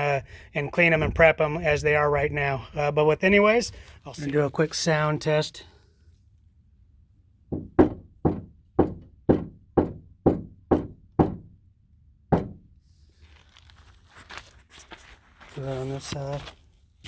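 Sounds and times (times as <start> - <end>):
knuckle knocking on metal panel: 7.5 - 11.6, 12.3 - 12.7.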